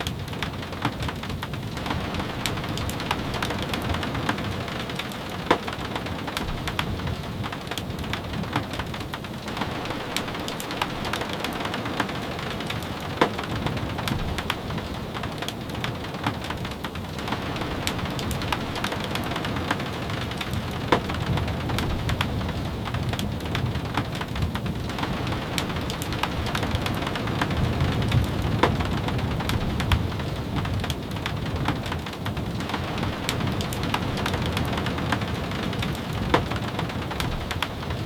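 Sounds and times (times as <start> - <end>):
steady rain: 0.0 - 38.0.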